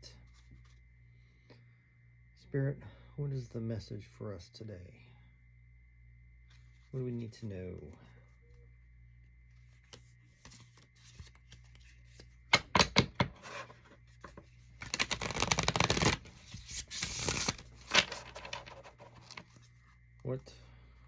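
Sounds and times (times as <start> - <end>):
cards shuffling rustle: 9.6 - 12.4, 13.4 - 19.8
cards snapping: 14.8 - 18.6.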